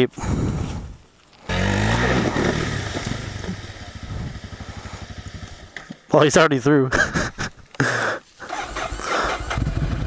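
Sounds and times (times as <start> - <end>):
motorcycle engine running: 1.5 - 6.1, 8.8 - 10.0.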